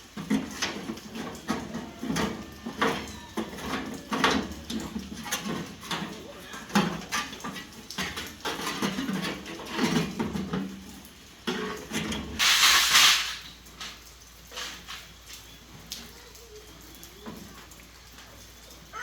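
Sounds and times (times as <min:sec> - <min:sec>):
loud hiss: 0:12.4 - 0:13.5.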